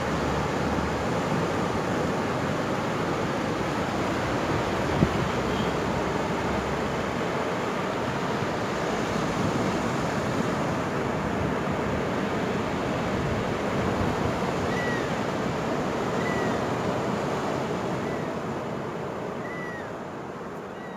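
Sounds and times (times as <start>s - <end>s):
ocean surf rushing: 0.0s - 20.9s
faint short high calls: 14.6s - 15.2s, 16.0s - 16.7s, 18.0s - 18.4s, 19.4s - 20.0s, 20.6s - 20.9s.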